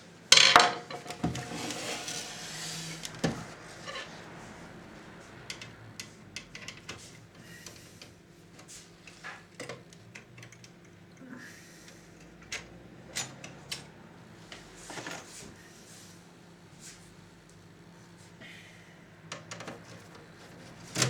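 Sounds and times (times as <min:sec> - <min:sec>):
hands clicking and tapping parts: 0:05.4 - 0:11.1.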